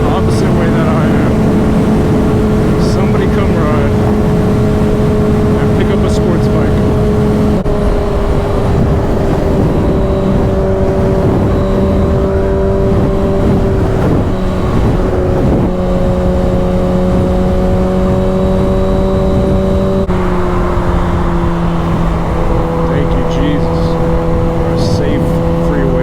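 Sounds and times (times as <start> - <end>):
motorcycle engine cruising: 0.0 - 26.0
wind rumble on microphone: 0.0 - 26.0.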